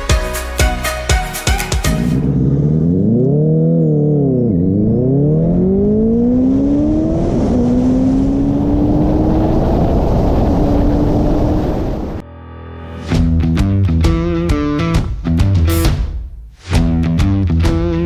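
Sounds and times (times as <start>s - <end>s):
motorcycle engine accelerating hard: 2.0s - 12.2s.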